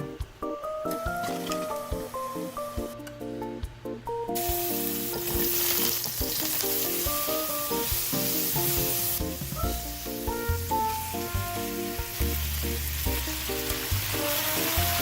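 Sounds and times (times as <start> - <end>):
background music with light melody: 0.0 - 15.0
food sizzling in a pan: 4.4 - 15.0.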